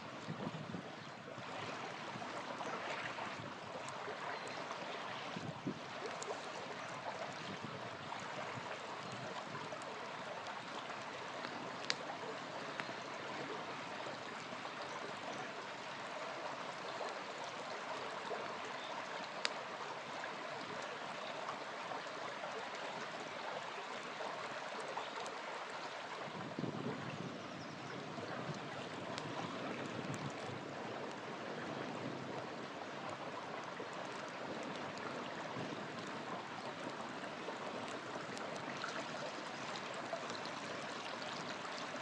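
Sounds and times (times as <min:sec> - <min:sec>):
small river flowing: 0:00.0 - 0:42.0
campfire popping: 0:03.7 - 0:14.5, 0:28.4 - 0:40.5.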